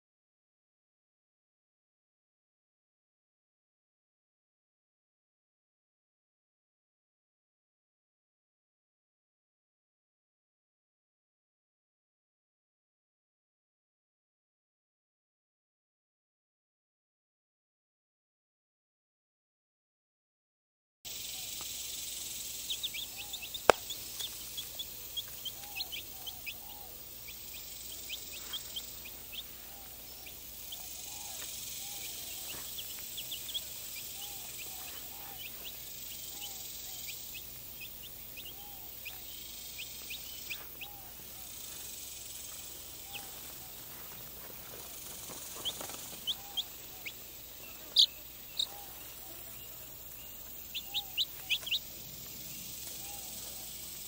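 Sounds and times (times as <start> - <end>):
chicks peeping: 21.1 - 54.0
outdoor hiss: 21.1 - 54.0.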